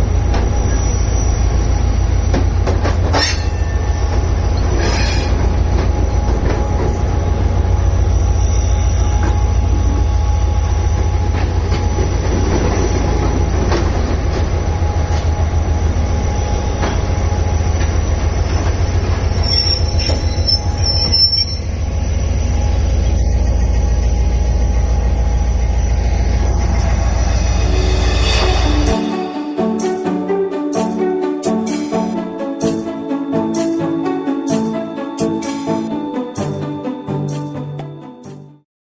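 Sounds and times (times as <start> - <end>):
train rumbling on rails: 0.0 - 38.6
high wheel squeal: 18.4 - 22.1.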